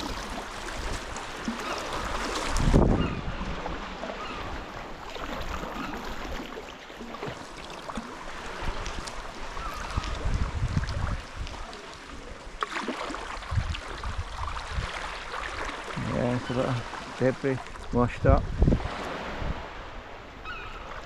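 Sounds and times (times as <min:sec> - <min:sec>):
water splashing around kayak: 0:00.0 - 0:21.0
wind rumble on microphone: 0:02.4 - 0:04.7, 0:08.5 - 0:11.8, 0:13.4 - 0:15.1, 0:17.9 - 0:20.8.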